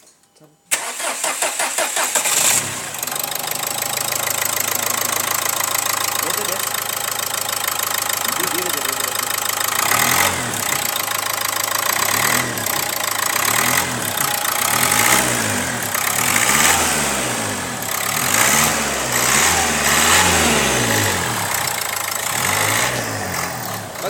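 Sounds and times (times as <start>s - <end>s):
diesel engine revving: 0.7s - 24.0s.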